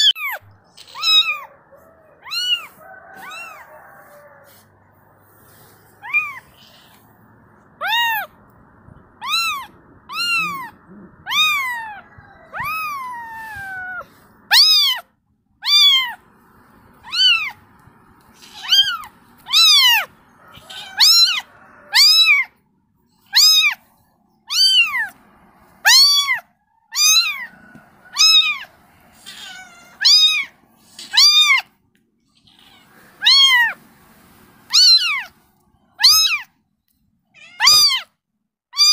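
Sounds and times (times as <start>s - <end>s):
kitten meowing: 0.0s - 1.5s, 2.2s - 3.6s, 6.0s - 7.1s, 7.8s - 8.4s, 9.1s - 15.0s, 15.6s - 16.2s, 17.0s - 17.6s, 18.4s - 22.5s, 23.3s - 23.8s, 24.5s - 25.2s, 25.8s - 31.7s, 32.4s - 33.8s, 34.7s - 35.4s, 36.0s - 36.5s, 37.4s - 38.1s.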